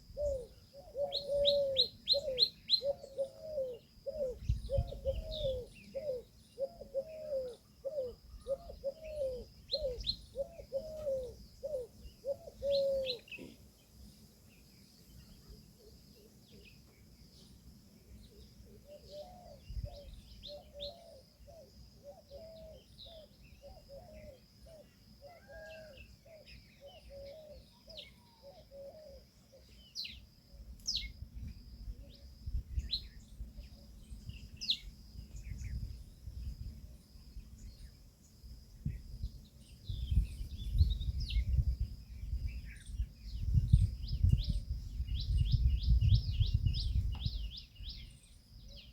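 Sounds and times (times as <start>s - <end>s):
small birds chirping: 0.0s - 48.9s
peahen calling: 0.1s - 13.6s, 18.3s - 29.8s.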